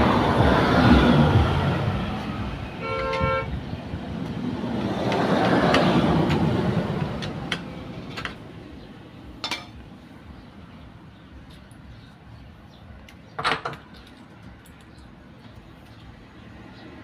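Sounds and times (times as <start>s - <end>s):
motor vehicle passing: 0.0s - 2.8s, 3.5s - 8.9s.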